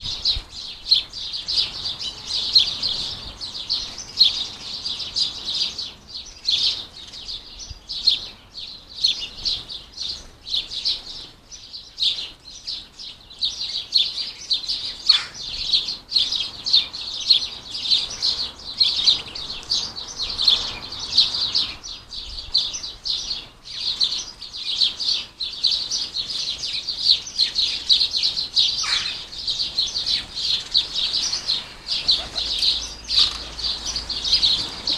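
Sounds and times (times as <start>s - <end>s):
birds chirping and twittering: 0.0s - 34.9s.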